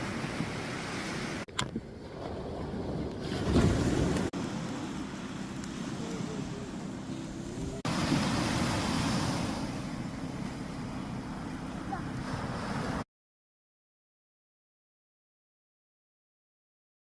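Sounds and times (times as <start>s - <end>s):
sea waves washing on shore: 0.0s - 13.0s
wind buffeting microphone: 0.0s - 13.0s.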